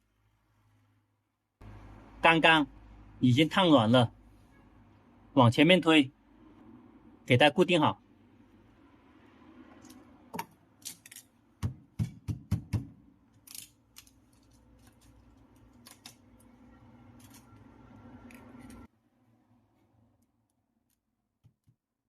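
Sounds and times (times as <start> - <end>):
tape clicks and crackles: 13.3 - 18.9.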